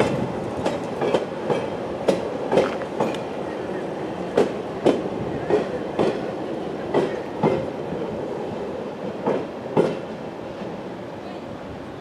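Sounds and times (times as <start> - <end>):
wheels clacking over rail joints: 0.0 - 3.6
railway wagons rumbling: 0.0 - 12.0.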